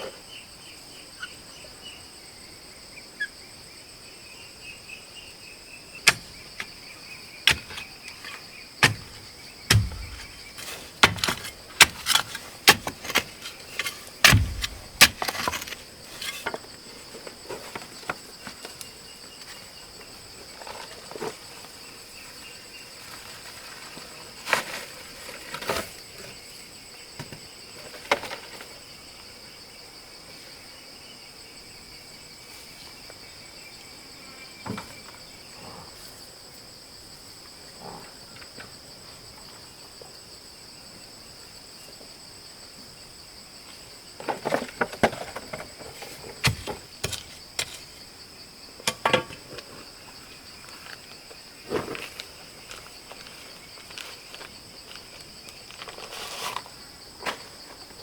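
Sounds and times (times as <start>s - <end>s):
insects droning: 0.0s - 58.0s
sharp knocks and clatters: 6.0s - 6.7s, 7.5s - 16.6s, 44.2s - 48.0s, 48.8s - 49.4s.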